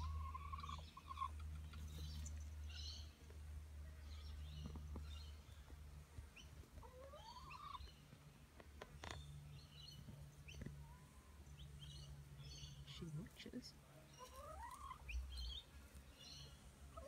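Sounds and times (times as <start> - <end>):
birds chirping: 0.0 - 17.0
low steady hum: 0.0 - 17.0.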